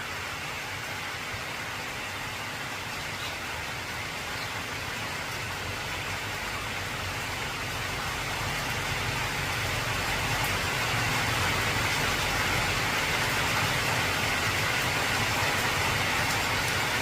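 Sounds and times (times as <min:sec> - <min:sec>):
heavy rain on a tin roof: 0:00.0 - 0:17.0.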